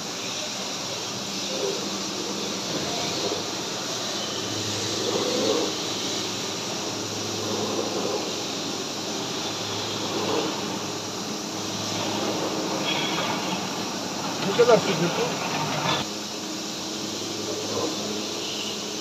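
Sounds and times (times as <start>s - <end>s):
machining centre humming and hissing: 0.0s - 19.0s.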